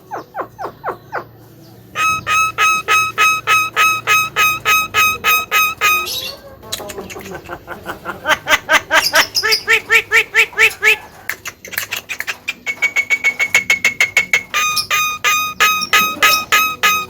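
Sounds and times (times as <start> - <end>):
myna chattering calls: 0.0 - 17.0
long whistled bird note: 2.0 - 6.1.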